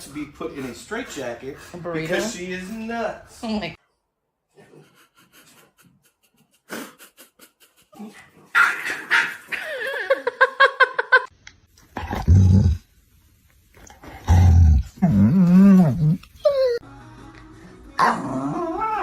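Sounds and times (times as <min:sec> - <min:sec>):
dog deep growl: 0:13.9 - 0:16.3
dog warbling cry: 0:18.0 - 0:19.0.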